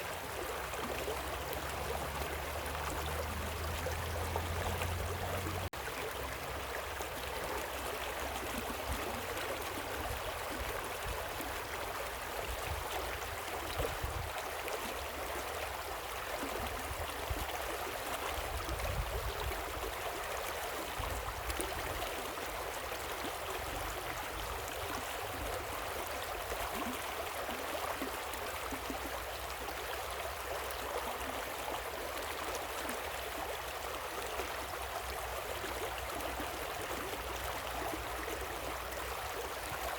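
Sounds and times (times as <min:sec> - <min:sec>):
water rushing over rocks: 0:00.0 - 0:20.3.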